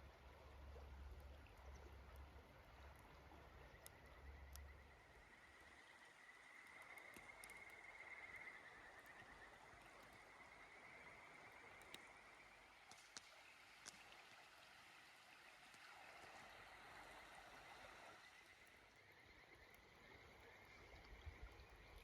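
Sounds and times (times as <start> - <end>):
river water flowing: 0.0 - 22.0
small sharp clicks: 2.9 - 5.1, 6.5 - 14.6.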